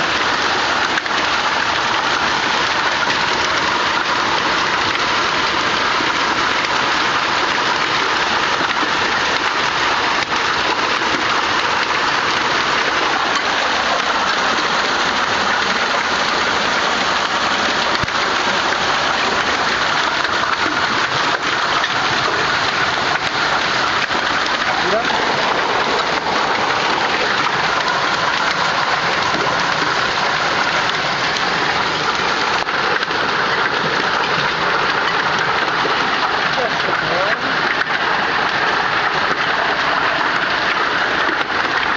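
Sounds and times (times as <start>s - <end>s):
hail and heavy rain pelting: 0.0s - 41.9s
ticks of hailstones: 0.0s - 41.9s.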